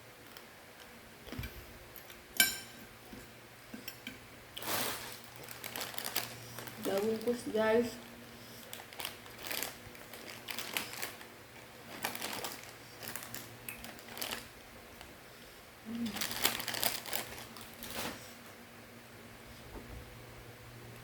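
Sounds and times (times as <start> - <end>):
crunchy snack being chewed: 16.0 - 17.8.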